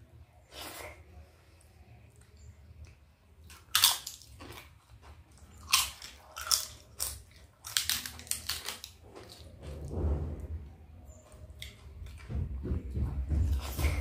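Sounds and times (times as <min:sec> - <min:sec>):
quiet chewing: 0:00.4 - 0:09.8.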